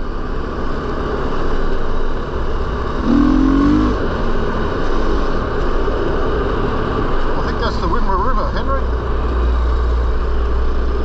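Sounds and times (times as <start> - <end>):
dirt bike engine running: 0.0 - 7.2.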